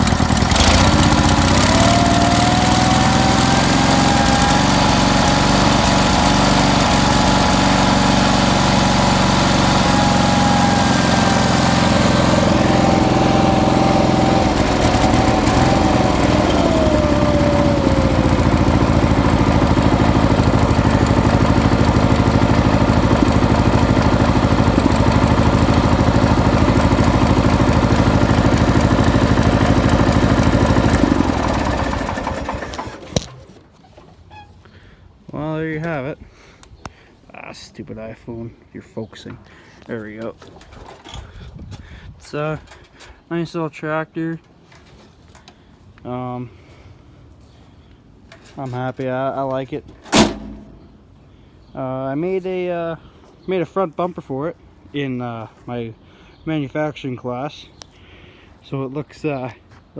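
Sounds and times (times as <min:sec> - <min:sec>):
engine running with whine: 0:00.0 - 0:33.6.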